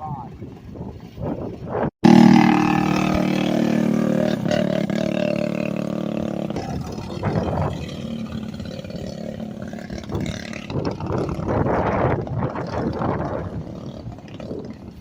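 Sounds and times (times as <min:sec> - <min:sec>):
racing engine droning: 0:02.0 - 0:14.8.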